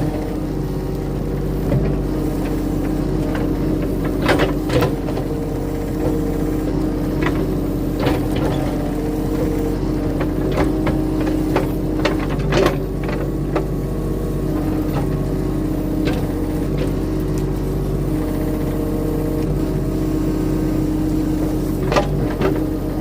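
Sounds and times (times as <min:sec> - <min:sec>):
diesel engine under load: 0:00.0 - 0:23.0.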